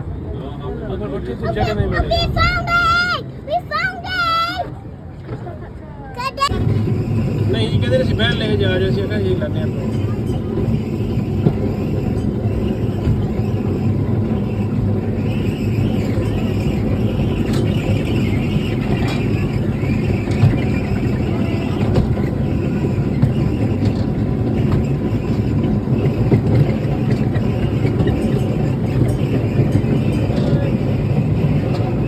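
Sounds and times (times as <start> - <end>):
ride-on train rumbling: 0.0 - 32.0.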